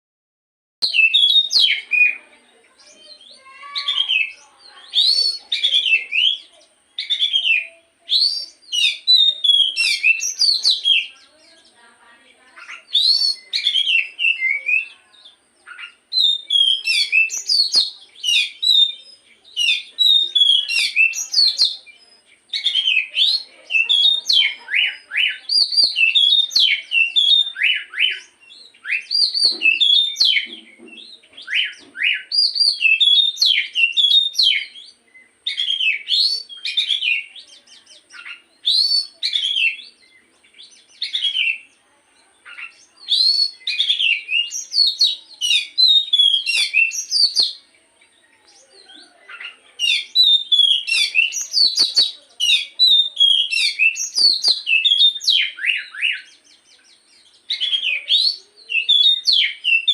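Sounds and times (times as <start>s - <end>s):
songbird singing whistled phrases: 0.8s - 11.8s, 12.5s - 59.9s.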